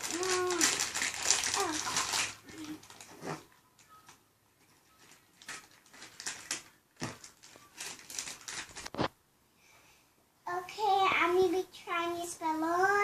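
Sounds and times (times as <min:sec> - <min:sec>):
candy packaging crinkling: 0:00.0 - 0:09.2.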